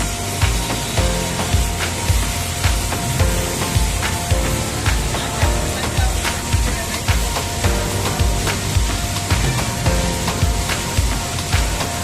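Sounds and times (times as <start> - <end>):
music with steady beat: 0.0 - 12.0
noisy hiss: 0.0 - 12.0.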